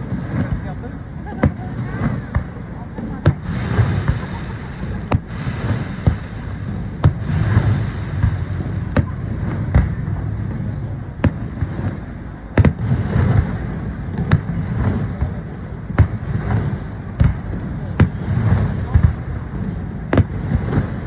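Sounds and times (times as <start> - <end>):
fireworks banging: 0.0 - 21.0
steady low rumble: 0.0 - 21.0.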